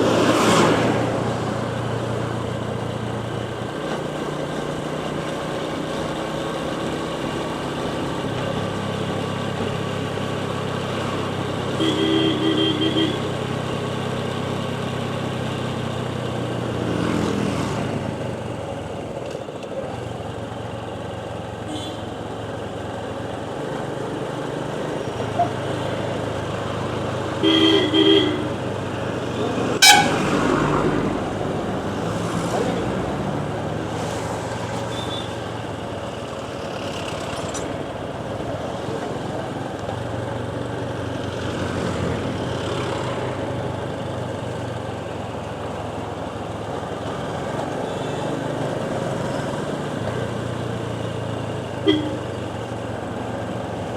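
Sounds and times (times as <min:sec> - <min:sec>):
vehicle horn honking: 0:11.7 - 0:13.3, 0:21.7 - 0:22.1, 0:27.4 - 0:28.6, 0:29.8 - 0:30.3, 0:34.9 - 0:35.4, 0:51.8 - 0:52.3
motorcycle engine running: 0:34.5 - 0:53.9.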